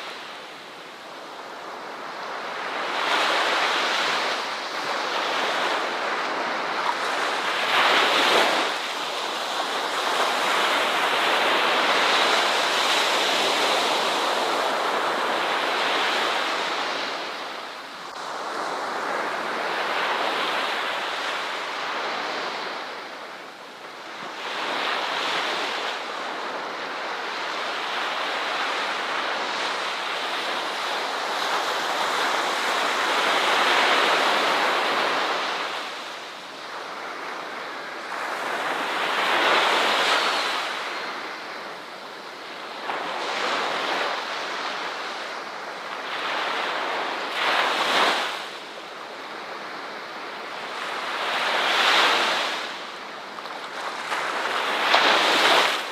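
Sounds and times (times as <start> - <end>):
ocean waves breaking: 49.4 - 55.9.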